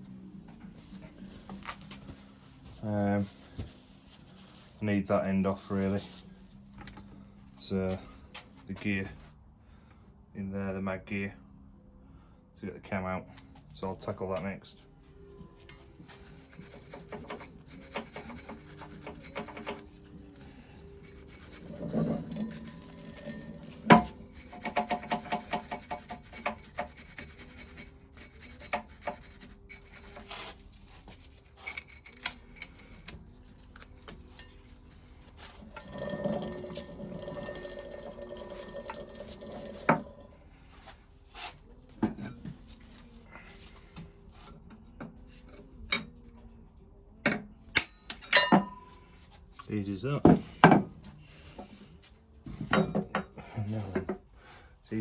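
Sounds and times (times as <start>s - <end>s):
metal scraping on metal: 16.0s - 43.9s.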